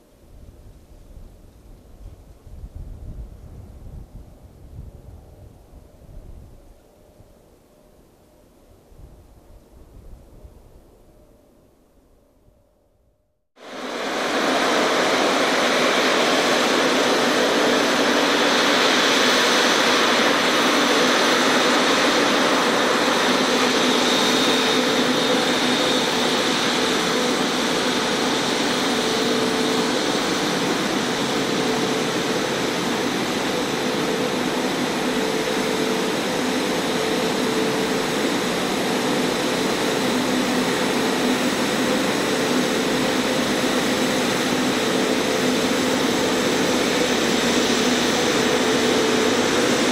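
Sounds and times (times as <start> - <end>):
jet engines running: 13.6 - 49.9.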